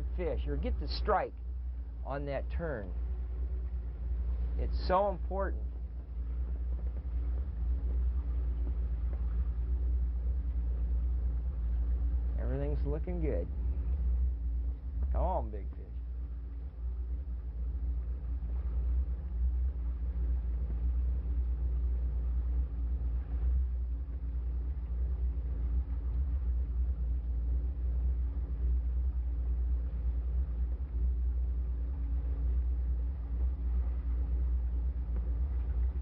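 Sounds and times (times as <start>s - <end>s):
boat motor rumbling: 0.0s - 36.0s
steady hum: 0.0s - 36.0s.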